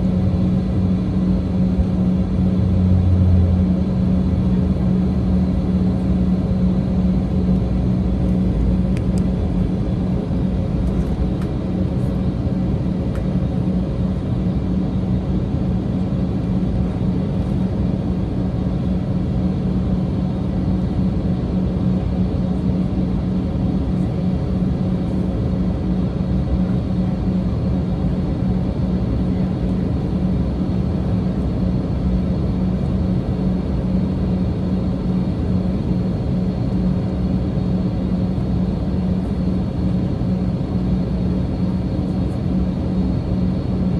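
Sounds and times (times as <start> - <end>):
airliner cabin rumble: 0.0 - 43.9
steady hum: 0.0 - 43.9.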